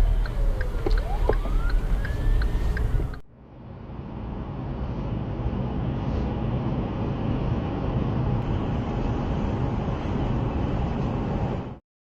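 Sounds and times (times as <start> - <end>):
emergency siren wailing: 0.0 - 3.2
vehicle driving rumble: 0.0 - 11.8.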